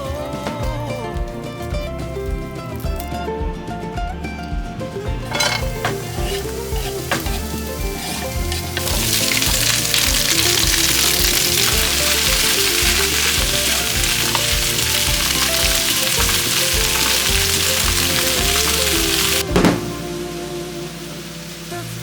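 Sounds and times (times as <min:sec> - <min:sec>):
food sizzling in a frying pan: 0:05.3 - 0:22.0.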